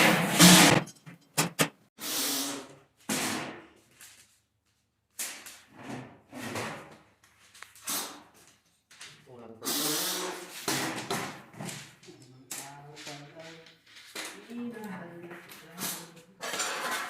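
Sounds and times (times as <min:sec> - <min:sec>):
metal scraping: 0:00.0 - 0:01.4.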